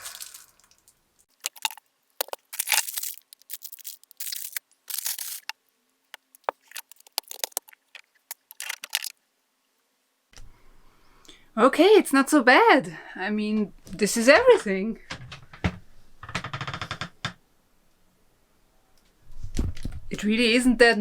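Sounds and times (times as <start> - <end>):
food packaging rustling: 0.0 - 9.1.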